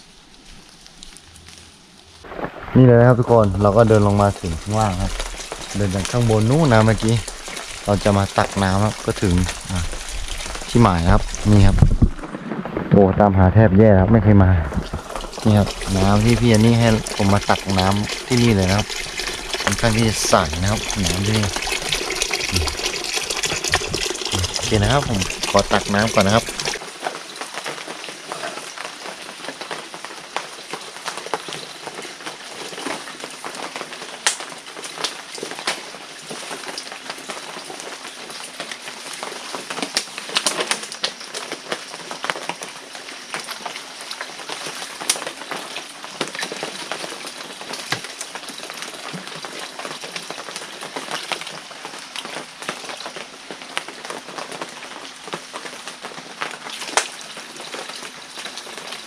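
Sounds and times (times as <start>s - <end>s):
water splashing and trickling: 0.0s - 30.8s.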